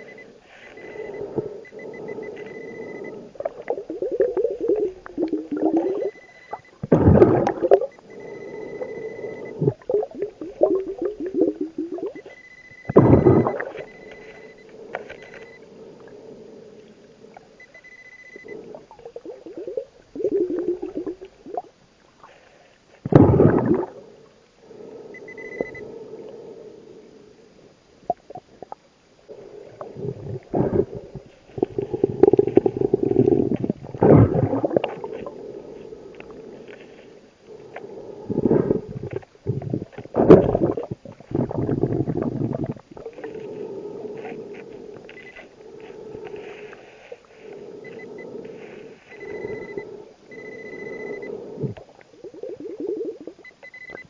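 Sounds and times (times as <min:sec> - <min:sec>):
short high beeps: 0:00.0 - 0:03.1, 0:05.7 - 0:06.8, 0:12.0 - 0:15.6, 0:17.6 - 0:18.6, 0:25.2 - 0:25.8, 0:49.1 - 0:51.3, 0:53.4 - 0:54.0
exhaled bubbles underwater: 0:00.0 - 0:15.4, 0:18.5 - 0:22.4, 0:23.1 - 0:24.1, 0:28.0 - 0:36.8, 0:37.6 - 0:45.2, 0:45.8 - 0:54.0
water gurgling: 0:00.0 - 0:15.4, 0:18.6 - 0:22.4, 0:23.0 - 0:24.2, 0:28.0 - 0:36.8, 0:37.8 - 0:45.2, 0:48.5 - 0:54.0.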